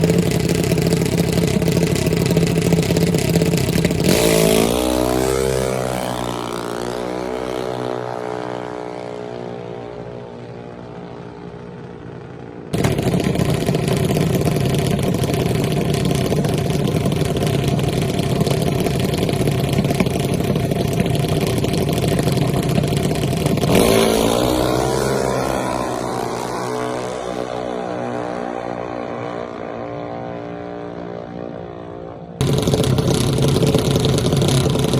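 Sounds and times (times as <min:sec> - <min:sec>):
racing engine at high revs: 0:00.0 - 0:10.1, 0:21.2 - 0:31.5, 0:32.4 - 0:34.9.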